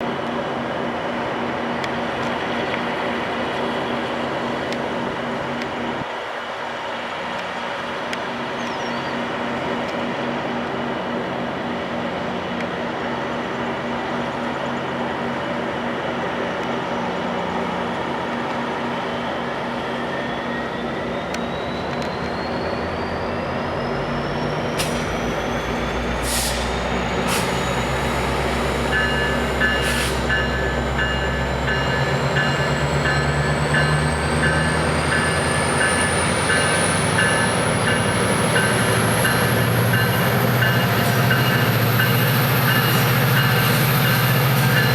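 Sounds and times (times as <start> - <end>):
diesel locomotive engine rumbling: 0.0 - 44.9.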